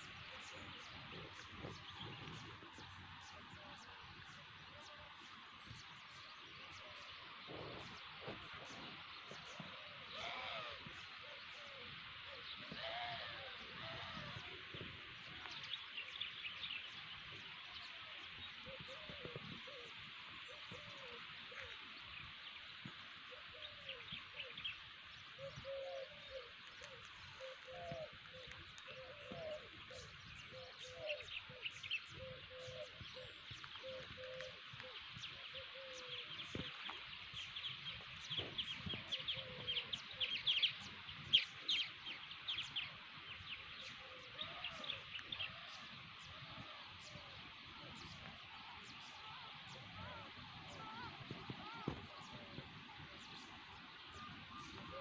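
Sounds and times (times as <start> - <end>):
low bird call: 6.6 - 15.7, 43.4 - 55.0.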